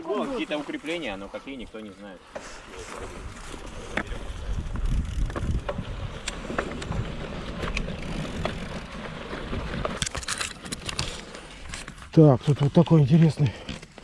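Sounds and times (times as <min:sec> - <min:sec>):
wind buffeting microphone: 0:03.0 - 0:10.0.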